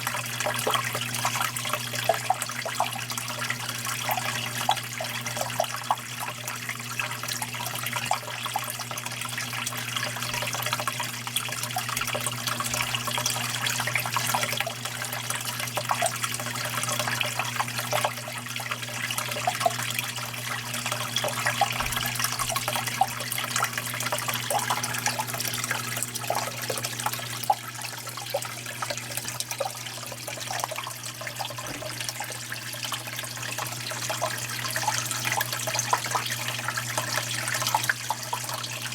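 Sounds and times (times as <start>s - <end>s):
running water splashing: 9.8s - 38.9s.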